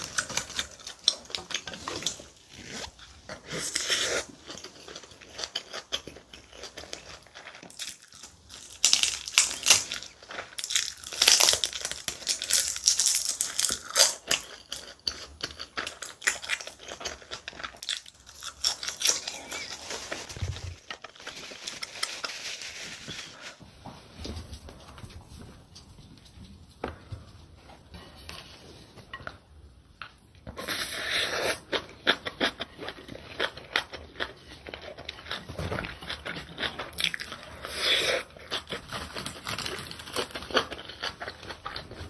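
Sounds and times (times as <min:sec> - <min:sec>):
person chewing: 0:00.0 - 0:22.3, 0:30.1 - 0:42.0
crinkly crunches: 0:03.6 - 0:23.6, 0:32.9 - 0:42.0.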